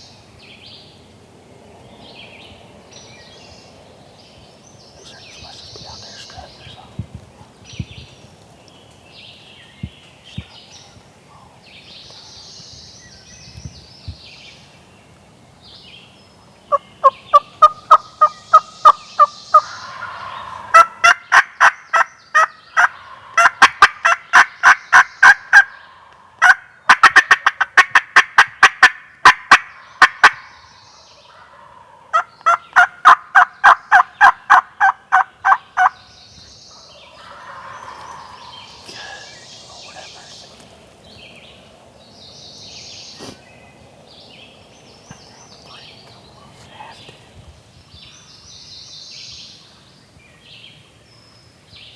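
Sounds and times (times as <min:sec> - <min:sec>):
turkey yelping: 0:37.1 - 0:40.2.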